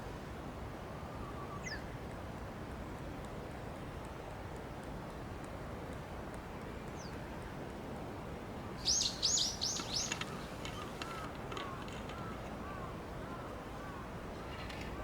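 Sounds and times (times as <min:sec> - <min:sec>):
bird singing high notes: 0:08.8 - 0:10.2
fainter lower bird calls: 0:08.8 - 0:15.0.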